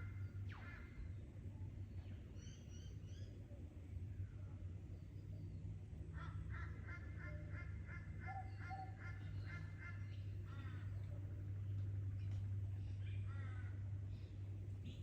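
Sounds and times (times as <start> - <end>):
steady low rumble: 9.2 - 15.0.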